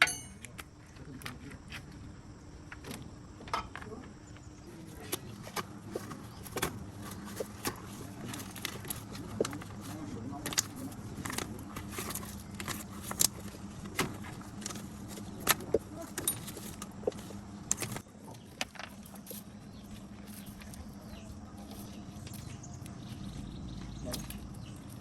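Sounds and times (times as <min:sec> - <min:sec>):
metallic clinks and taps: 0:00.0 - 0:00.6
steady low hum: 0:00.0 - 0:25.0.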